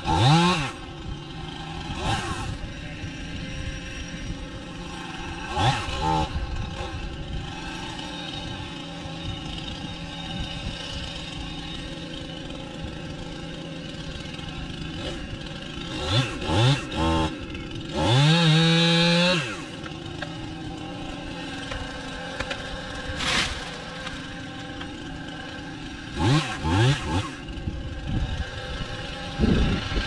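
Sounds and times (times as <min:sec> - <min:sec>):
engine revving from idle: 0:26.1 - 0:27.4.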